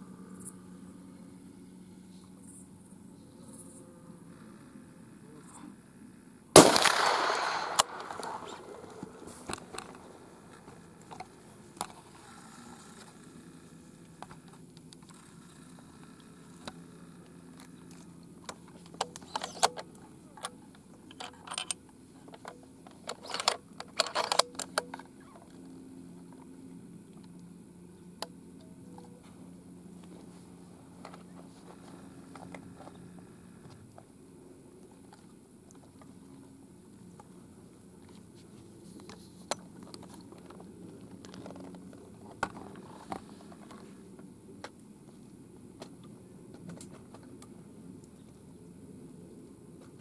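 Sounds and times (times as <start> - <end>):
rifle shot: 6.6 - 10.0
handling clicks and rustles: 6.6 - 12.2, 17.6 - 26.5, 38.0 - 45.2.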